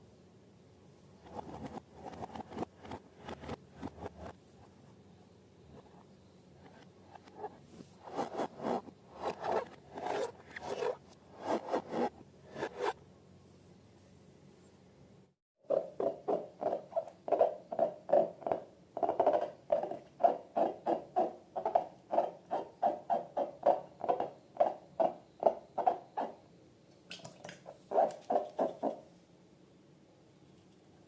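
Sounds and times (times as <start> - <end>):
short rubbery squeaks: 6.6 - 13.0.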